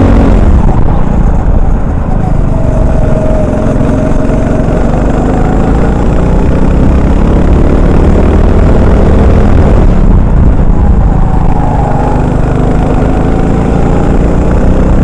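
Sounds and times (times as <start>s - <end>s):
kart engine running hard: 0.0s - 15.0s.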